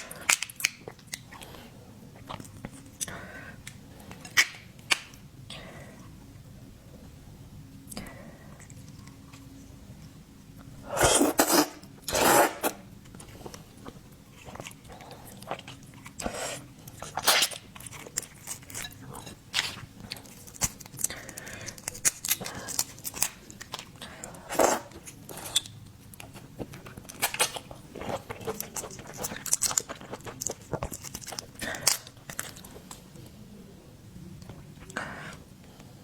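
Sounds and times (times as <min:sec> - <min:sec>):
chewing with wet clicks: 0:13.0 - 0:33.0.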